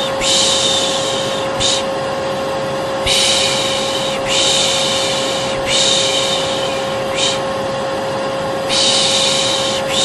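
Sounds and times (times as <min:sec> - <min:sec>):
vacuum cleaner running: 0:00.0 - 0:10.0
person shushing: 0:03.0 - 0:07.5, 0:08.7 - 0:10.0.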